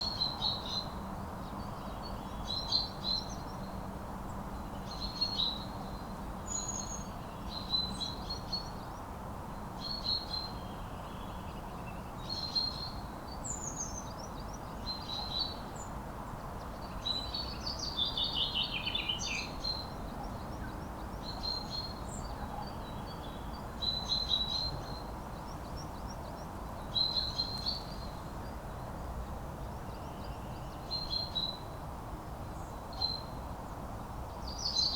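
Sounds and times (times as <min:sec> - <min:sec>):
songbirds singing: 0:09.8 - 0:29.1, 0:34.3 - 0:34.9.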